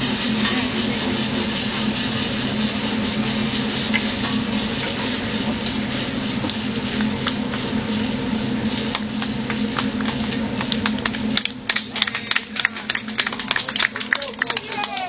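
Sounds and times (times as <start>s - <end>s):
steam sawmill machinery hissing: 0.0s - 10.6s.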